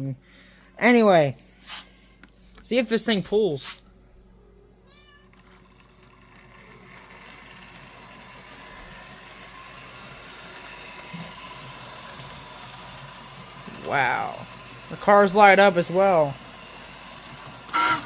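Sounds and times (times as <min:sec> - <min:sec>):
wheels clicking over rails: 0:05.3 - 0:18.0
small electric motor whine: 0:05.4 - 0:18.0.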